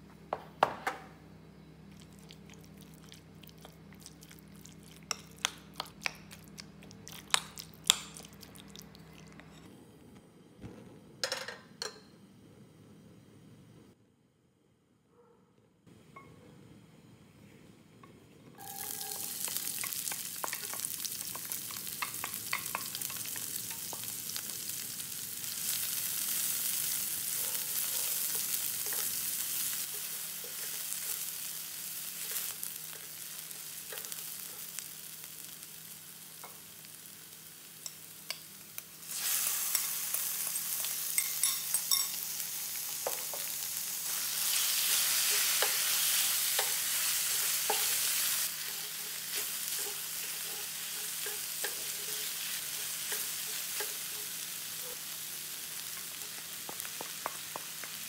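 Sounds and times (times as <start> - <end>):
onion sizzling in hot oil: 18.6 - 58.0.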